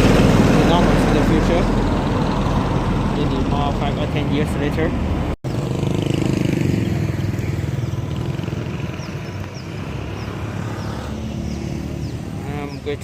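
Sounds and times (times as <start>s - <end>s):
street traffic: 0.0s - 13.0s
motorbike engine running: 5.5s - 12.8s.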